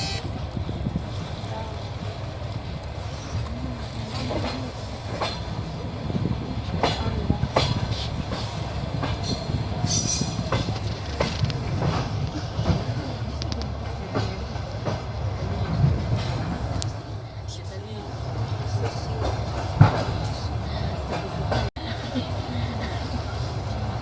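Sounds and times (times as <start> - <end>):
wheels clicking over rails: 0.0 - 17.0
train rumbling along track: 0.0 - 24.0.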